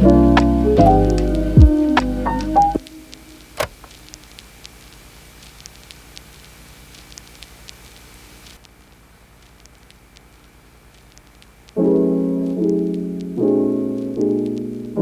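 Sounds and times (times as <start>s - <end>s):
piano music: 0.0s - 3.8s, 11.8s - 15.0s
faint crackling: 0.0s - 15.0s
sharp click: 3.6s - 4.0s.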